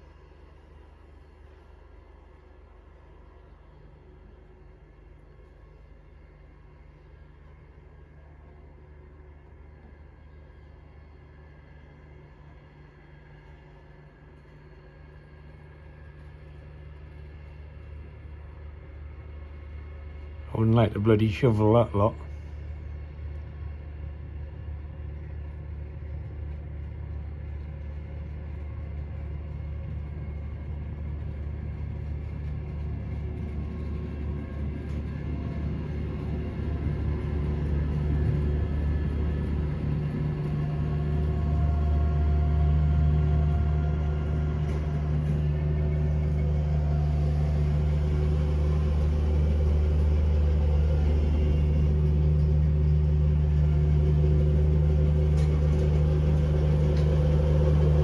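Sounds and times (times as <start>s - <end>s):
snow clearing machine engine: 30.5s - 58.0s.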